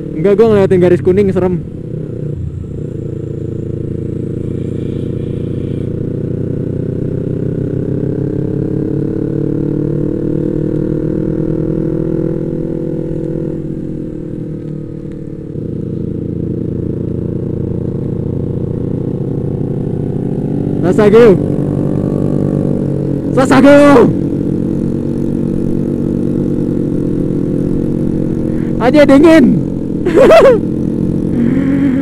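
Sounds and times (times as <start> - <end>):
motorcycle engine accelerating: 0.0 - 32.0.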